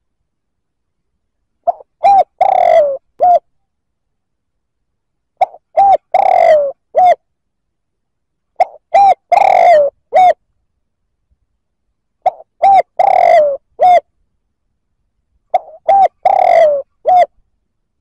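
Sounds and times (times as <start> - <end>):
dove cooing: 1.6 - 3.5, 5.4 - 7.2, 8.6 - 10.4, 12.2 - 14.1, 15.5 - 17.4.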